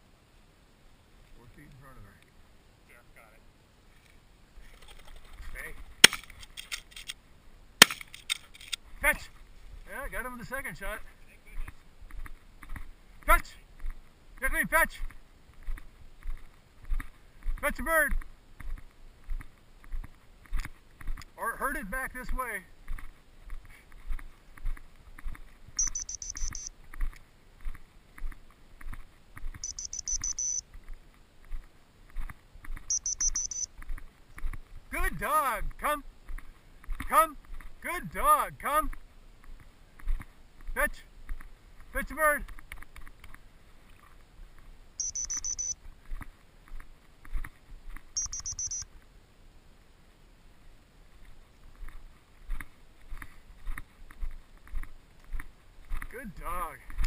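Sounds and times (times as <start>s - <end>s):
footsteps through field cover: 7.8s - 37.9s, 38.9s - 48.8s, 51.0s - 56.3s
rapid high-pitched beeps: 25.8s - 26.7s, 29.6s - 30.6s, 32.9s - 33.7s, 45.0s - 45.8s, 48.2s - 48.9s.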